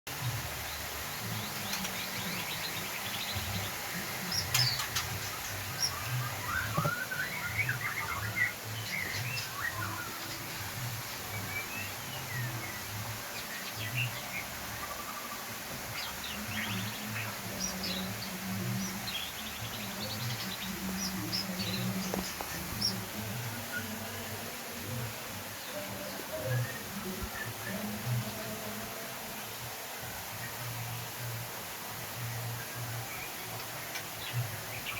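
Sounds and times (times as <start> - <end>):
whistled bird song: 1.2 - 24.0, 25.6 - 28.5
bird singing whistles and trills: 5.7 - 10.6.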